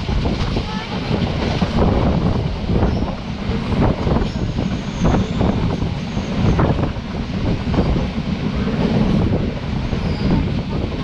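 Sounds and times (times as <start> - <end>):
train carriage rumbling: 0.0 - 11.0.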